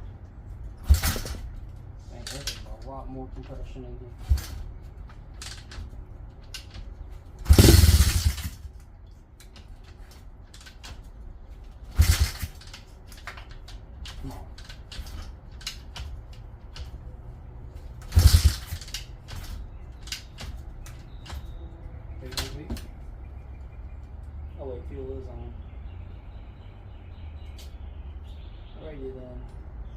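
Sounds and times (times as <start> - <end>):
engine turning over without catching: 0.6 - 2.6, 4.2 - 8.8, 11.8 - 17.0, 17.8 - 21.7.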